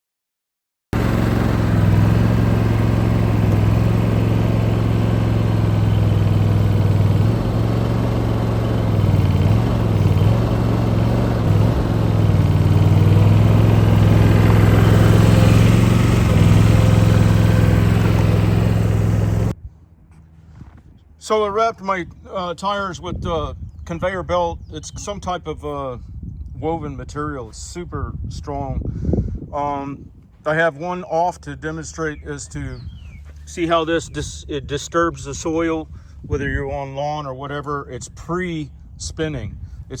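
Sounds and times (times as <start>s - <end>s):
skid steer engine running: 1.0s - 20.8s, 30.5s - 40.0s.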